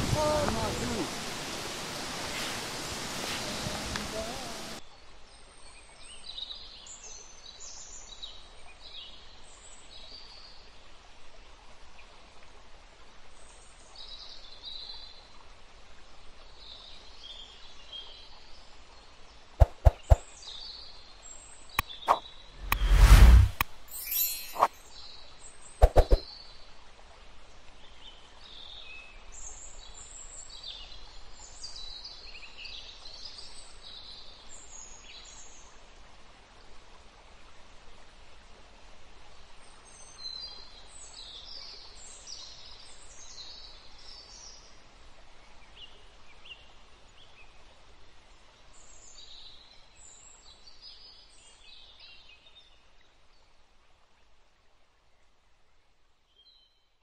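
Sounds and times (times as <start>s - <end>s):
soft outdoor hiss: 0.0s - 57.0s
birds chirping: 19.6s - 20.2s, 21.8s - 24.8s.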